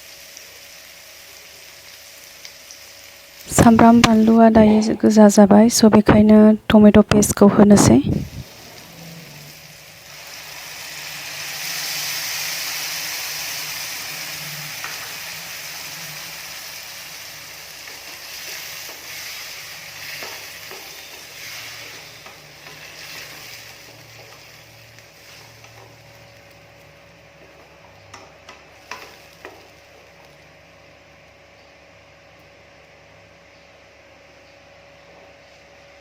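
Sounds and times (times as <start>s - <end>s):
paste sizzling in hot oil: 8.2s - 27.0s, 28.7s - 30.3s.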